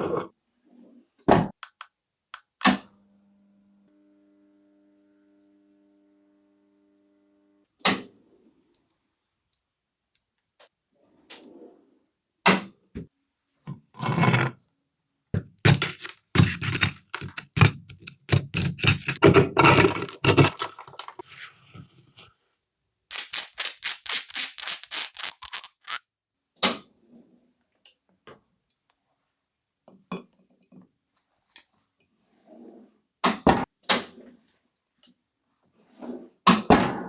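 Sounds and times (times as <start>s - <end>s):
metal tools clinking on workbench: 15.7s - 21.2s, 23.1s - 26.0s.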